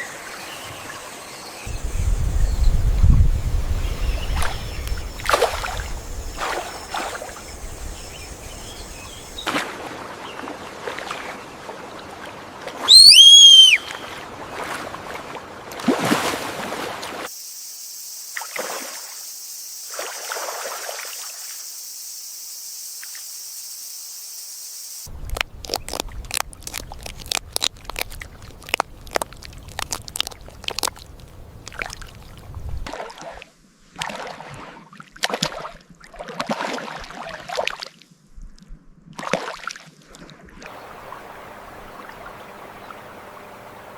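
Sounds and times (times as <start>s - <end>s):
steady high hiss: 1.4s - 9.5s, 17.3s - 25.3s, 40.7s - 43.9s
water splashing and trickling: 1.7s - 12.9s, 13.8s - 17.3s, 19.9s - 21.5s, 25.0s - 38.0s, 39.2s - 43.9s
short pitched animal call: 12.9s - 14.1s.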